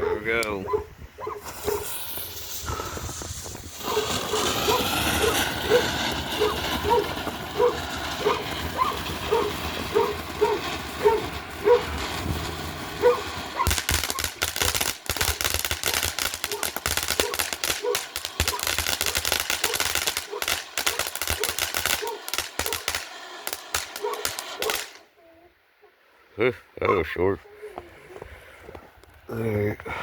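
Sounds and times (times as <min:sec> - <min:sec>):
dog barking: 0:00.0 - 0:01.9, 0:03.9 - 0:11.9, 0:13.0 - 0:14.3, 0:16.5 - 0:22.8, 0:24.0 - 0:24.8
firework fountain crackling: 0:01.4 - 0:25.1.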